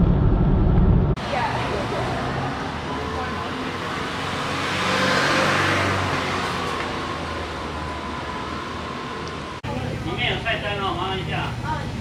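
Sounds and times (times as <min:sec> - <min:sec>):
vehicle passing: 0:01.2 - 0:09.6.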